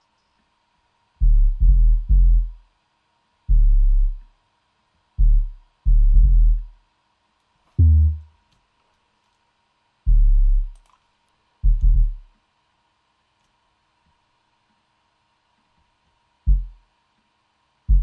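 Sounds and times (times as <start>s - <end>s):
deep bass hits: 1.2s - 2.6s, 3.5s - 4.2s, 5.2s - 6.7s, 7.8s - 8.3s, 10.1s - 10.7s, 11.6s - 12.2s, 16.5s - 16.8s.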